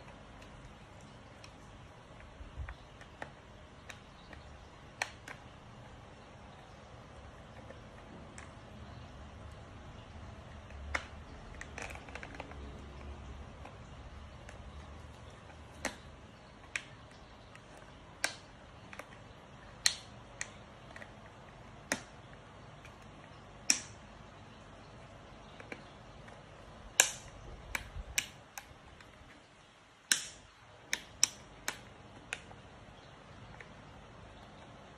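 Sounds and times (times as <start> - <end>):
small parts and tools clicking: 24.9 - 34.0.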